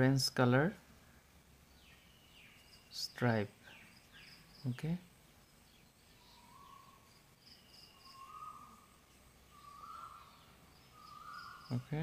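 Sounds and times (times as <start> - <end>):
faint high bird chirps: 1.7 - 12.0.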